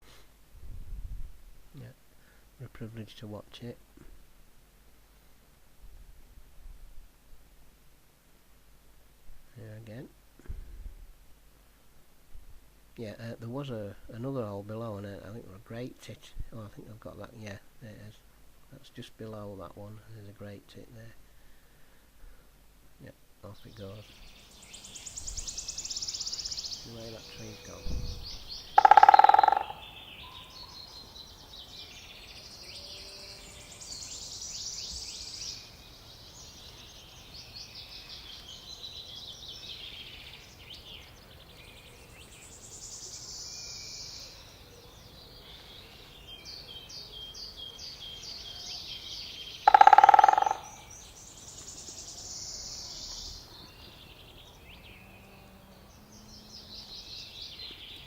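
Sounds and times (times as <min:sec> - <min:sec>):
songbirds singing: 0:12.9 - 0:58.0.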